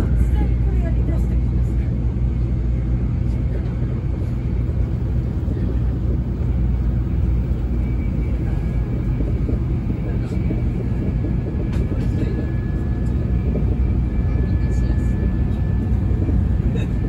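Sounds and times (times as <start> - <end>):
air rushing around train: 0.0 - 17.0
wheels rumbling on rail: 0.0 - 17.0.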